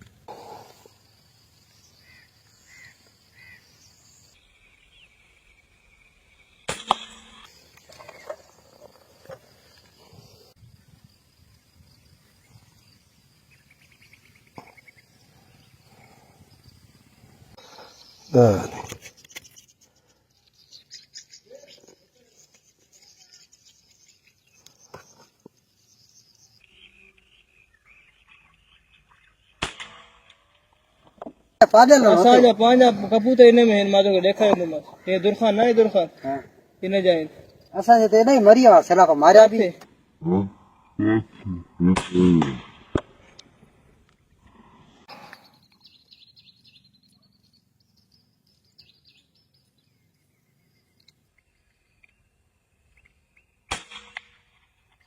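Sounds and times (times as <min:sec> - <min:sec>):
bird chirps: 0:01.6 - 0:09.3, 0:11.8 - 0:29.6, 0:45.0 - 0:53.7
air rifle shot cracks: 0:06.7 - 0:07.4, 0:29.6 - 0:30.4, 0:42.0 - 0:43.2, 0:53.7 - 0:54.6.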